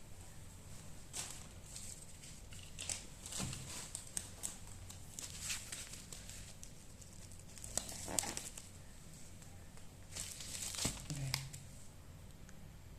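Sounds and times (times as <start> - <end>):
plastic packaging rustling: 1.0 - 8.8, 10.0 - 11.7.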